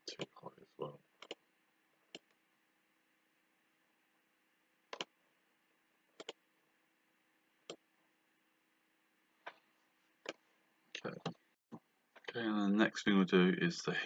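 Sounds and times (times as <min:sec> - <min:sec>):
computer mouse clicks: 0:01.2 - 0:01.4, 0:04.9 - 0:05.1, 0:06.2 - 0:06.4.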